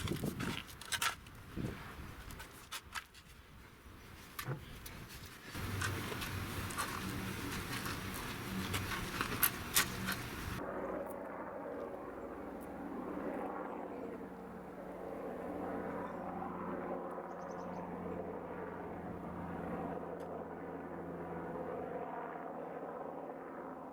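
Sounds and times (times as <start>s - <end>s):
tractor diesel engine running: 5.6s - 10.6s.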